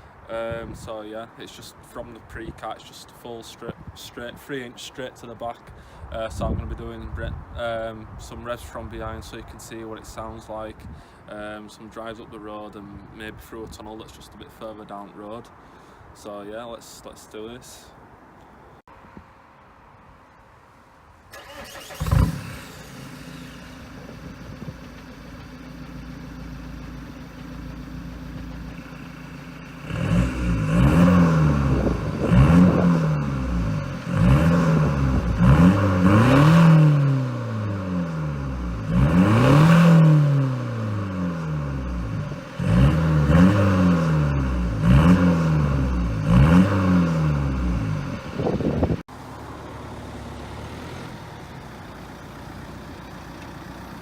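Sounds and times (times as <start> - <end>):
diesel engine idling and revving: 21.4 - 54.0.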